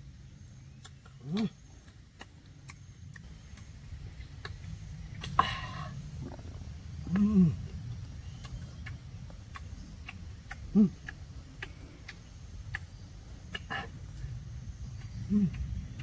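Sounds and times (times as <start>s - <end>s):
chewing mouth clicks and smacks: 0.7s - 5.4s, 6.2s - 16.0s
person humming mm: 10.7s - 11.1s.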